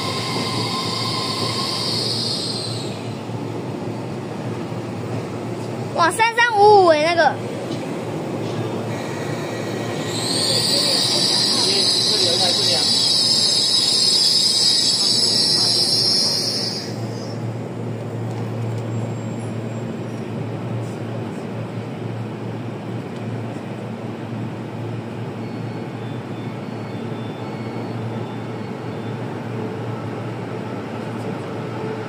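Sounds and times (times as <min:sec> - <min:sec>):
train wheels squealing: 0:00.0 - 0:03.3, 0:08.9 - 0:17.4, 0:18.8 - 0:20.2, 0:25.2 - 0:30.0.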